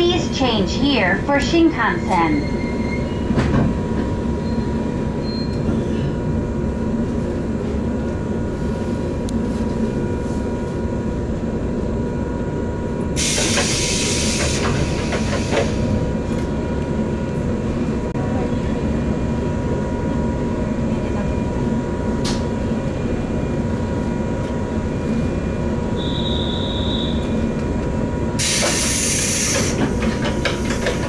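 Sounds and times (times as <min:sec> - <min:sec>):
train rumble: 0:00.0 - 0:31.0
air brake hiss: 0:13.2 - 0:15.9, 0:28.4 - 0:29.9.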